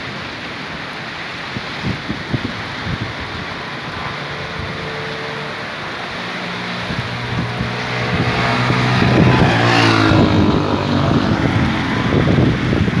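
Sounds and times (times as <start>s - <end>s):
rain hiss: 0.0s - 9.0s
vehicle engine passing by: 1.8s - 13.0s.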